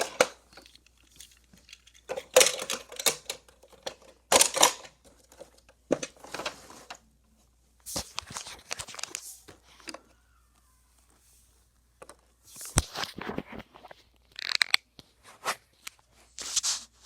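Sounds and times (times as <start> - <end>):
toy cars rattling on plastic track: 0.0 - 6.6.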